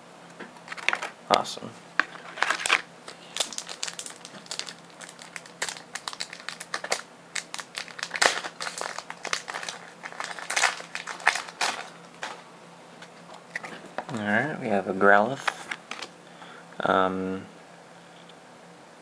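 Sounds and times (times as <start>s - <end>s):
plastic wrapper crinkling: 0.7s - 1.1s, 2.0s - 12.4s, 15.4s - 16.2s.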